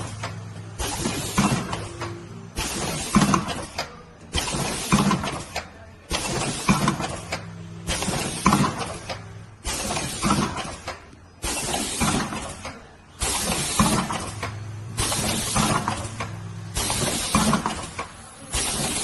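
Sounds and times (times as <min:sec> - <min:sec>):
packaging machine running: 0:00.0 - 0:19.0
hiss burst with knocks and clinks: 0:09.6 - 0:16.2.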